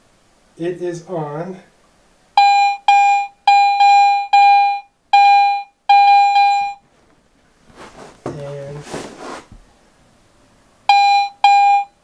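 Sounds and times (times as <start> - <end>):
metal detector beeping: 2.4 - 6.8, 10.9 - 12.0.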